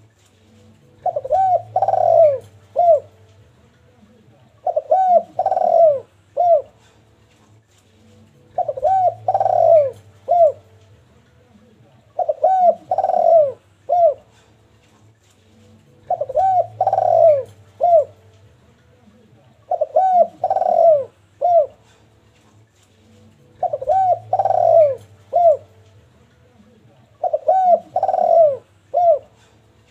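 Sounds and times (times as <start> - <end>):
dove cooing: 0.9 - 3.2, 4.6 - 7.0, 8.5 - 10.8, 12.1 - 14.6, 15.9 - 18.3, 19.6 - 22.0, 23.5 - 25.8, 27.2 - 29.6.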